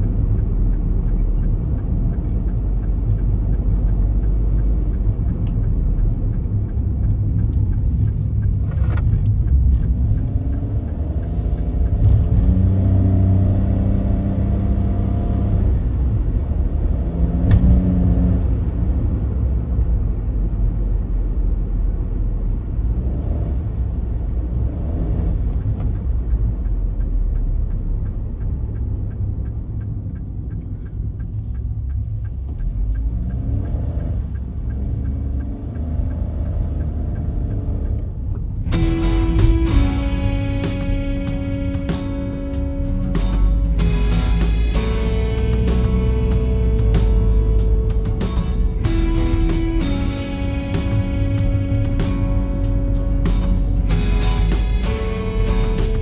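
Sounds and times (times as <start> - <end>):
car engine rumbling: 0.0 - 56.0
deep humming tone: 38.6 - 56.0.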